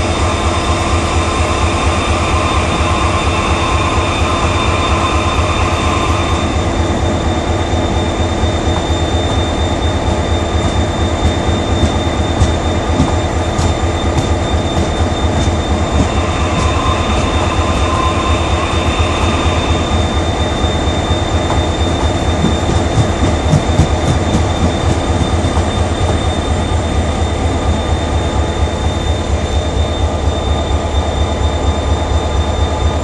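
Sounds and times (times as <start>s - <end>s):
train wheels rumbling on rails: 0.0s - 33.0s
faint wheel squeal: 0.2s - 33.0s.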